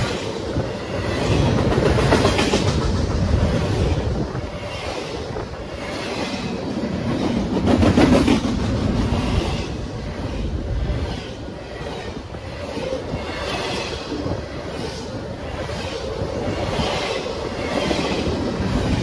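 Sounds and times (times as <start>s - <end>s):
train wheels clattering: 0.0s - 9.9s.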